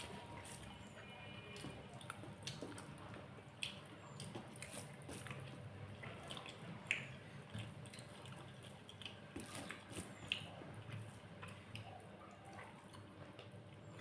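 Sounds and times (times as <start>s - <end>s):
person chewing food: 0.0s - 14.0s
lip-smacks and clicks: 3.6s - 4.8s, 6.3s - 10.6s.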